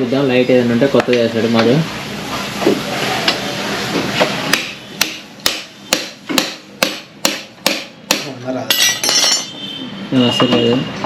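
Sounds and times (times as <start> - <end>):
hammer striking metal: 4.5 - 9.6.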